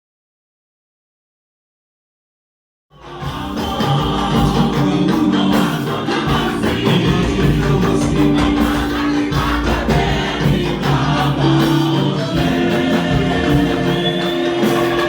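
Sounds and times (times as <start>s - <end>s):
choir singing gospel: 3.0s - 15.0s
steady percussion: 3.0s - 15.0s
bass line: 3.1s - 15.0s.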